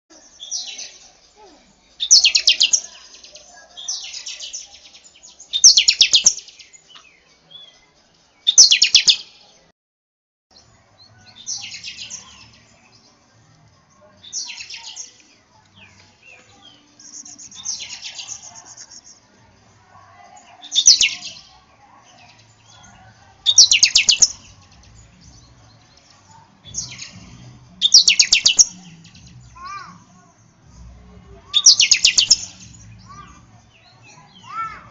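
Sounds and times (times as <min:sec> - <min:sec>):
bird singing rapid high notes: 0:27.8 - 0:30.0, 0:31.5 - 0:34.8.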